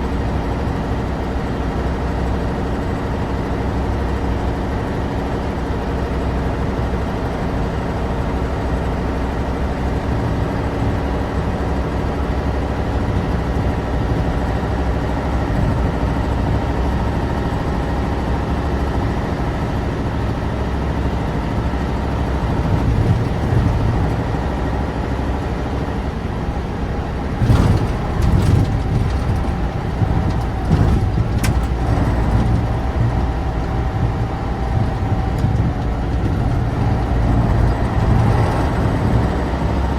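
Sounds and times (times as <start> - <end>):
truck engine running: 0.0 - 39.9
sharp knocks and rattles: 27.2 - 39.7.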